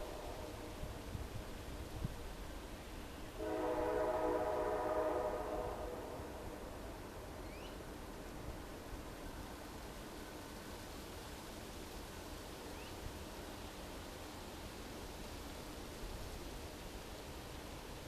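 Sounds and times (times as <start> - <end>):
train horn blast: 3.4 - 6.6.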